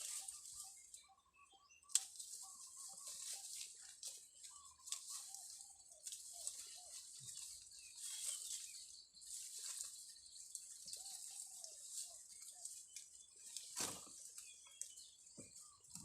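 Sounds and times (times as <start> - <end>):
bird calls rising and falling: 0.0 - 8.9.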